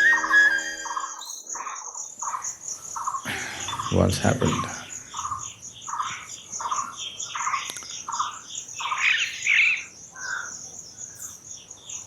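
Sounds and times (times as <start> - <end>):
high-pitched pulsing chirr: 0.0 - 1.7
high loud bird chirps: 0.0 - 10.6.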